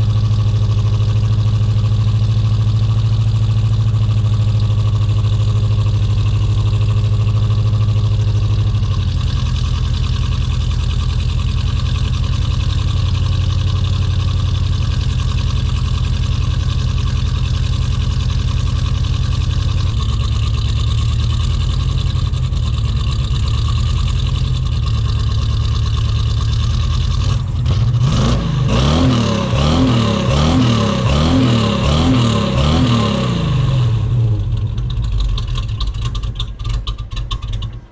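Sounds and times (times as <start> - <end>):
engine idling rough: 0.0 - 37.9
engine revs rising and falling: 27.1 - 34.6.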